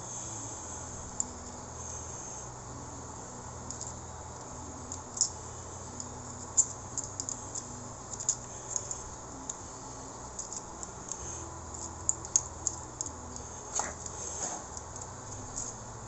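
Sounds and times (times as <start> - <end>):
steady low hum: 0.0 - 16.0
small metal parts clicking: 1.0 - 1.6, 3.6 - 15.8.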